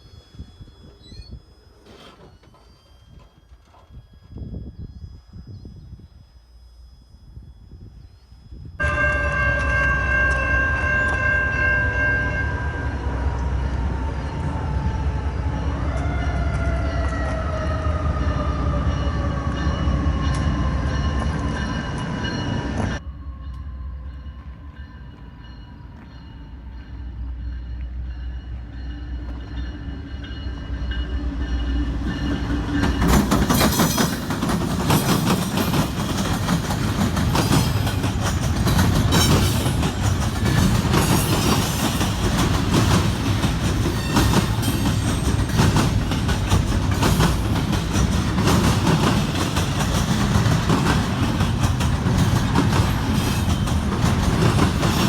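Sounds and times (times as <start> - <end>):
freight train rumbling past: 8.7 - 55.0
wheels clattering over rails: 32.1 - 55.0.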